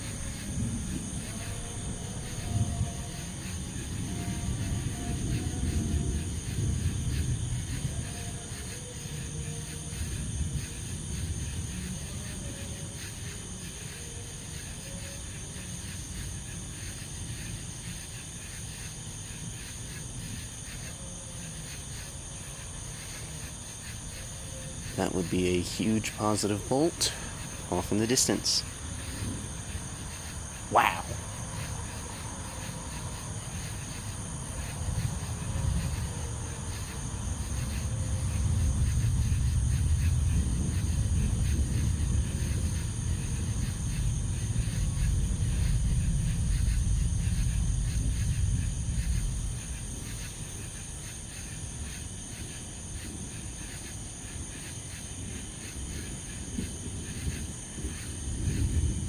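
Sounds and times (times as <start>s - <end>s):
rolling thunder: 0.0s - 9.2s
crickets chirping: 0.0s - 59.0s.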